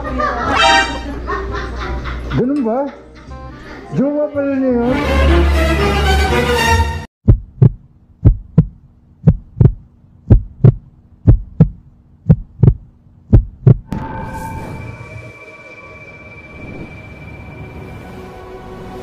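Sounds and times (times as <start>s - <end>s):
heartbeat thumps: 7.2s - 13.9s.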